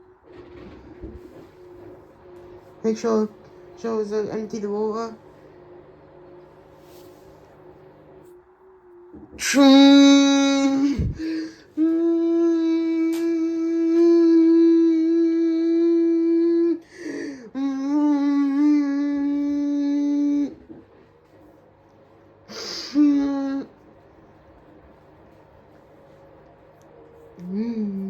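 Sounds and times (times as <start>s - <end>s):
person humming: 8.9s - 20.8s, 22.5s - 23.8s, 27.3s - 28.0s
person breathing: 10.8s - 11.8s, 16.8s - 17.6s, 22.5s - 23.1s.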